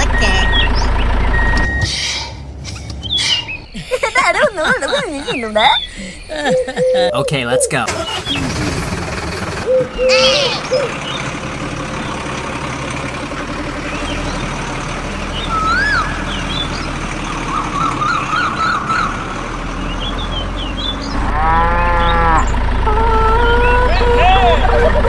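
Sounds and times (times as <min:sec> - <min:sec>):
bird chirps: 0:00.0 - 0:04.0, 0:05.2 - 0:12.3, 0:13.6 - 0:24.8
cow mooing: 0:20.9 - 0:24.6.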